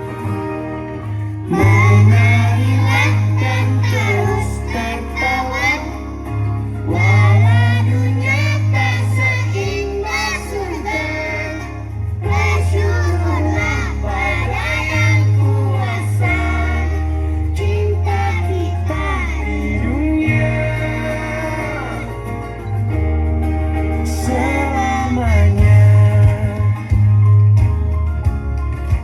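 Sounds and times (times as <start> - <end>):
children's choir singing: 1.5 - 22.3.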